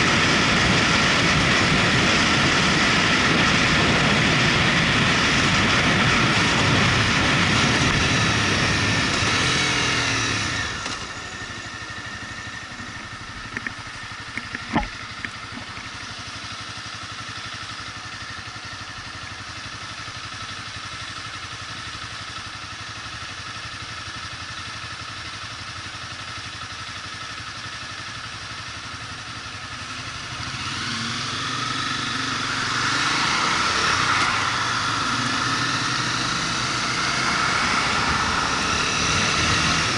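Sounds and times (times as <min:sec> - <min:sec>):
wind noise: 0:00.0 - 0:09.8
motorcycle engine: 0:00.0 - 0:39.9.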